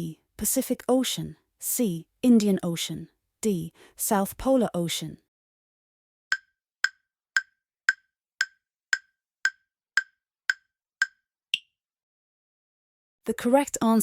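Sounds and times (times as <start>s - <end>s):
countdown timer ticks: 6.3s - 11.7s.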